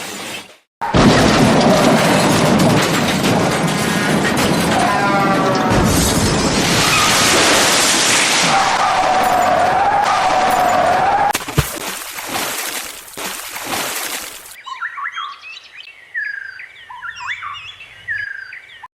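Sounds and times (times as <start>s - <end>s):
rushing noise: 0.8s - 11.0s
birds chirping: 14.2s - 18.9s.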